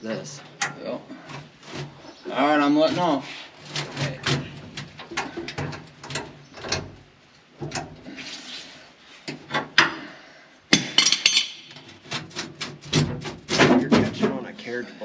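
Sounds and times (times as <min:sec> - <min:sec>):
rattling metal clatter: 0:10.7 - 0:14.6
steel plate scraping and knocking: 0:10.8 - 0:14.7.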